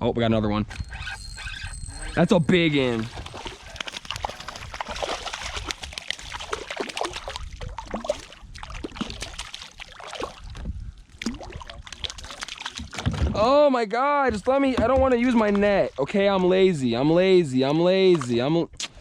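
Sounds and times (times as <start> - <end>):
water splashing against kayak: 2.6 - 13.5, 14.4 - 17.2.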